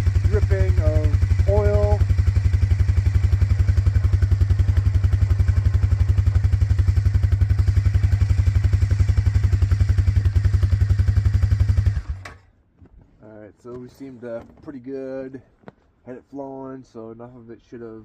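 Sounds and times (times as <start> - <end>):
engine idling with even putter: 0.0 - 12.4.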